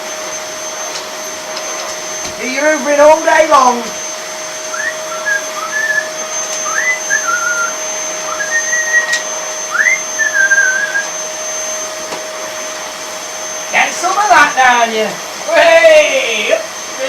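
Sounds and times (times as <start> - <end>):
vacuum cleaner running: 0.0 - 17.0
wavering whistled chirps: 4.6 - 11.1.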